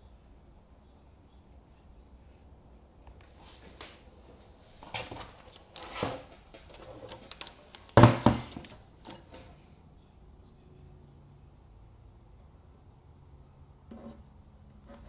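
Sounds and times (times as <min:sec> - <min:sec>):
tape clicks: 0:07.1 - 0:08.8
knock: 0:08.0 - 0:08.5.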